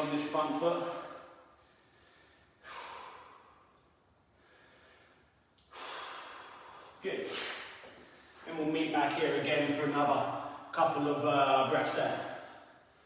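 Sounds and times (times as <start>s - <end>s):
man breathing: 0.8s - 8.5s, 12.2s - 13.0s.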